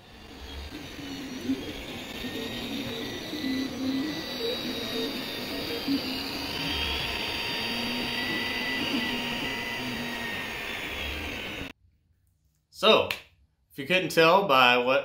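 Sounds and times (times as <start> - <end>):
cooling fans whirring: 0.0 - 11.7
stepper motor notes: 0.0 - 11.7.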